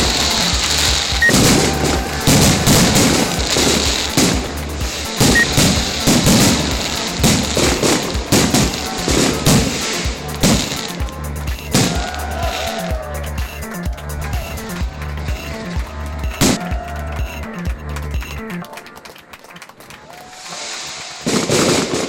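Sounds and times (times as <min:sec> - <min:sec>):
fireworks bangs and crackles: 0:00.0 - 0:12.9, 0:14.3 - 0:16.7, 0:20.1 - 0:22.0
music playing: 0:00.0 - 0:22.0.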